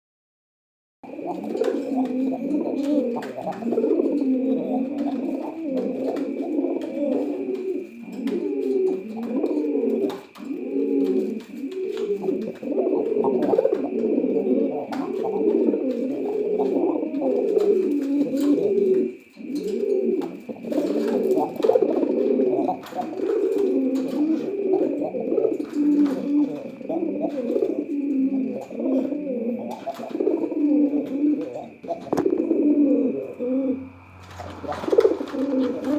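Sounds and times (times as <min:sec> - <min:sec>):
pigeons cooing: 0:01.0 - 0:35.9
faint high whine: 0:31.0 - 0:35.9.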